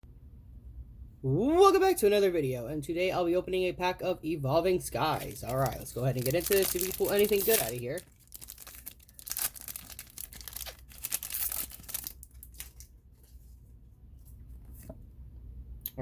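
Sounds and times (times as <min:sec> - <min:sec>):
foil wrapper tearing and crinkling: 0:04.9 - 0:12.9
cards rustling and clicking: 0:04.9 - 0:13.4.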